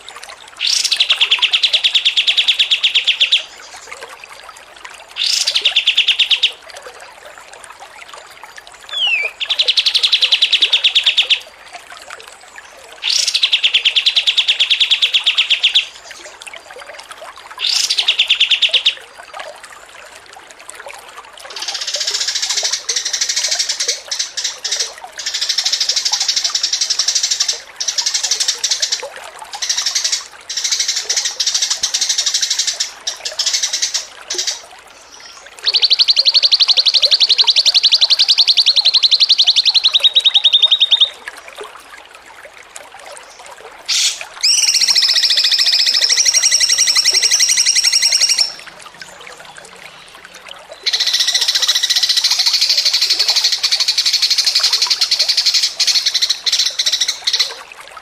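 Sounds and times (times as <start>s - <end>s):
chattering bird song: 8.9s - 11.4s, 29.6s - 41.1s, 43.9s - 48.6s
songbird buzzy trill: 43.9s - 48.6s.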